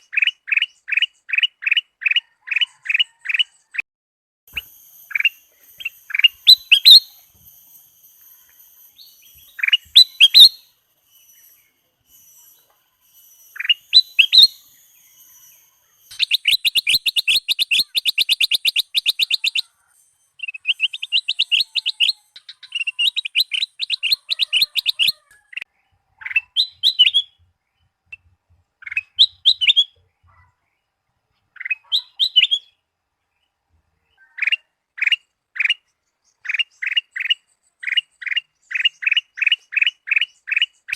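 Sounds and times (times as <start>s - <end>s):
bird rapid chattering notes: 4.5s - 7.2s, 9.3s - 10.6s, 13.2s - 19.7s, 20.4s - 25.3s
bulbul whistled song: 4.5s - 27.4s, 28.1s - 30.0s, 31.6s - 32.8s.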